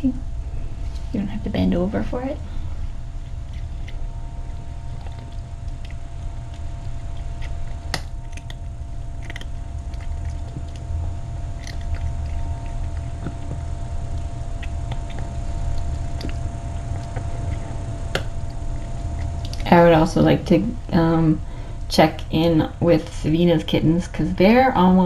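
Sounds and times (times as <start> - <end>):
low hum: 0.0 - 25.0
cat chewing clicks: 5.0 - 10.9.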